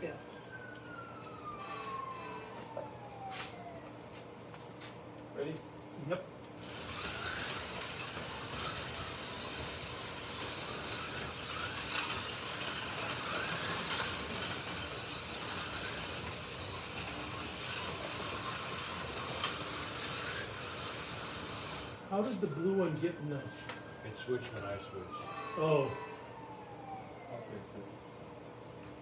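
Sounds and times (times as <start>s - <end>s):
slot cars whirring: 6.6s - 22.3s.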